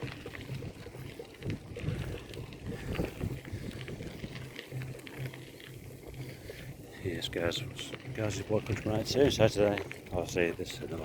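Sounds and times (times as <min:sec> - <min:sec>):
wind rumbling on microphone: 0:00.0 - 0:06.2
faint clicks and rattles: 0:00.0 - 0:11.0.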